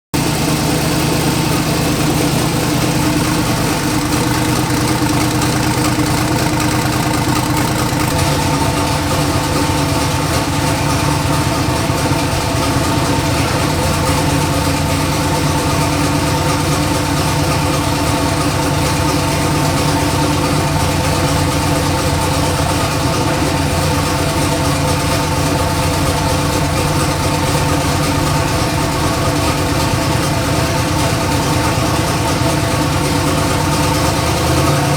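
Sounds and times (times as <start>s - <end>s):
car engine idling: 0.2s - 34.9s.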